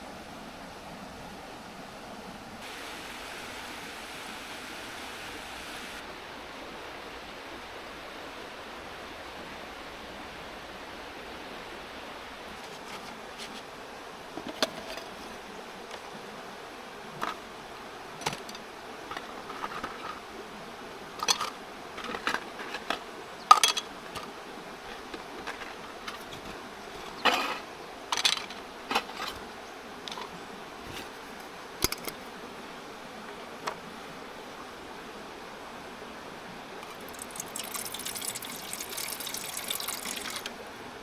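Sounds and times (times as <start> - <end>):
mountain stream hissing: 2.6 - 12.6, 33.9 - 41.0.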